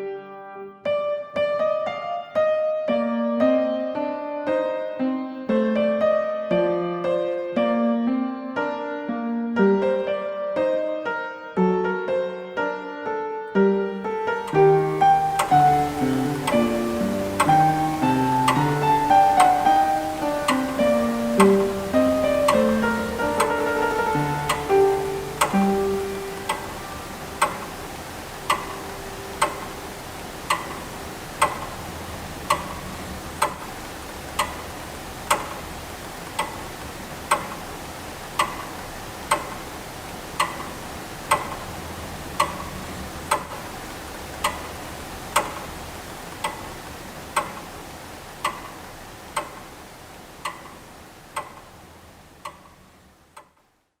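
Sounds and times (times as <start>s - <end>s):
clock ticking: 14.1s - 53.8s.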